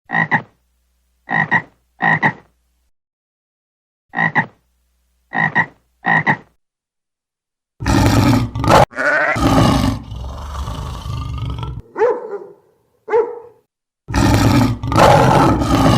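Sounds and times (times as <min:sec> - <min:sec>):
animal croak-like calls: 0:00.1 - 0:00.6, 0:01.3 - 0:02.5, 0:04.1 - 0:04.6, 0:05.3 - 0:06.5, 0:07.8 - 0:11.9, 0:14.1 - 0:15.9
rough growling: 0:07.8 - 0:11.9, 0:14.1 - 0:15.9.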